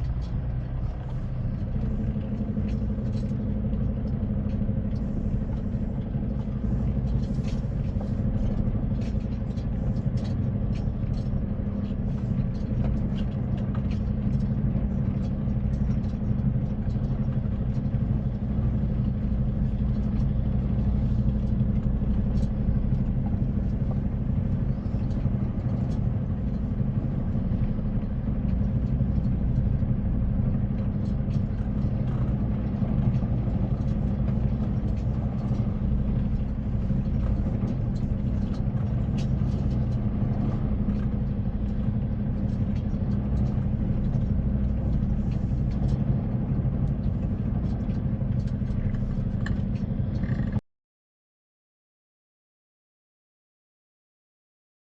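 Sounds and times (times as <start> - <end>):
truck engine drone: 14.6 - 50.6.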